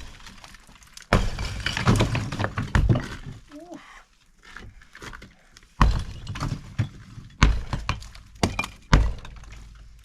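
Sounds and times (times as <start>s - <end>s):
sledgehammer hitting block wall: 1.1s - 3.4s, 5.8s - 10.0s.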